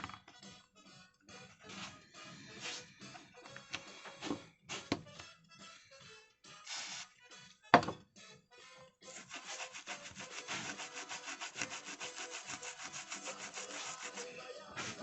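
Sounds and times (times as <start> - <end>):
rapid scraping strokes: 9.1 - 15.0.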